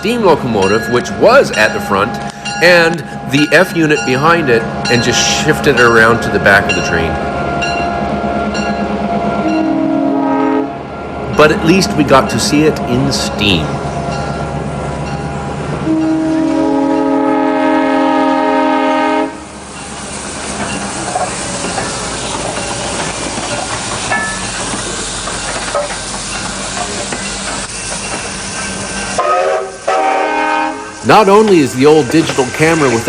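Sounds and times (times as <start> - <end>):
wheels clattering over rail joints: 0.0 - 7.9, 19.7 - 29.2, 31.1 - 33.0
train rumbling past: 0.0 - 33.0
train horn blast: 8.0 - 14.2, 15.8 - 19.5, 29.2 - 31.1.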